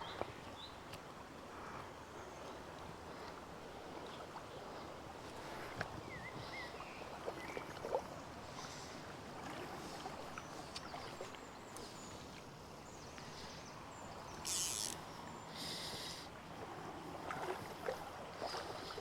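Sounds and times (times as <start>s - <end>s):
river water running: 0.0s - 19.0s
short hissing swishes: 14.4s - 15.0s
small clicks: 14.4s - 15.0s.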